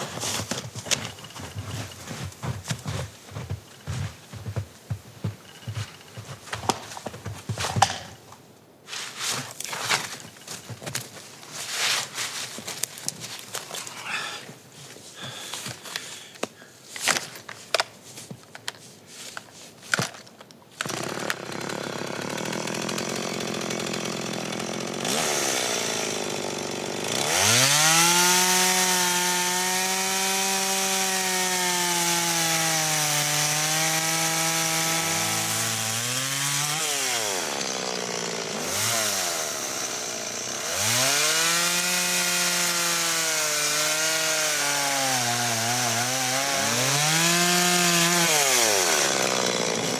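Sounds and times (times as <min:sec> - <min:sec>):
chainsaw engine running at high revs: 0:20.9 - 0:49.9.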